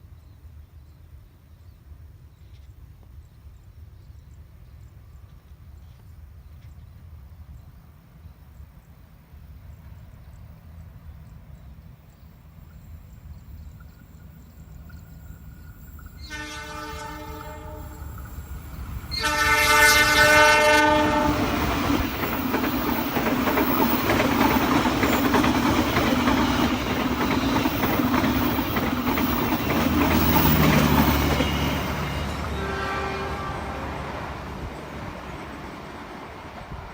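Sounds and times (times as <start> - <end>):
train rumbling past: 3.4 - 36.9
train horn blasts: 16.2 - 18.2, 19.1 - 21.8, 31.4 - 34.7
wheels clattering on rails: 21.1 - 32.6.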